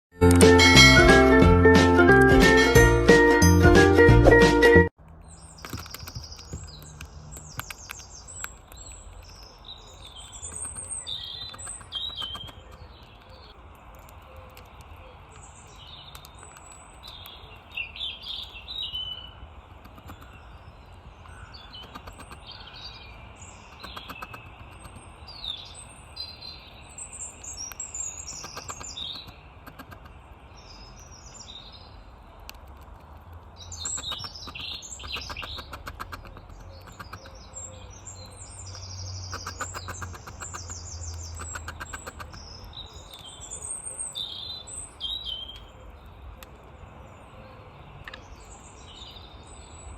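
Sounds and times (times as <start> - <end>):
rapid ticking bird notes: 5.1 - 20.6, 21.2 - 22.9, 23.5 - 25.8, 27.0 - 31.4, 32.4 - 43.6
songbirds chirping and singing: 5.1 - 49.9.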